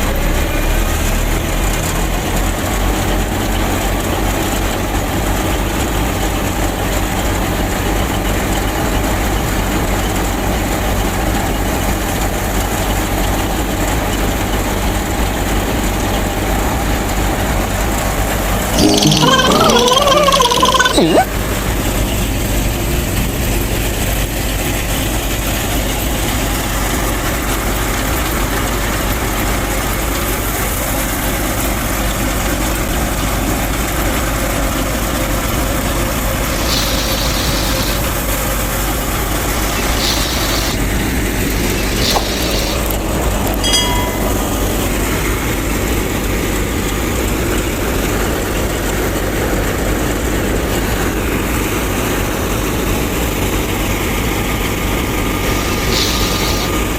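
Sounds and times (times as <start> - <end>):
faint brief high tones: 18.8 - 21.3, 43.6 - 44.6
small machine motor running: 36.5 - 38.2, 39.7 - 40.8, 55.5 - 56.8.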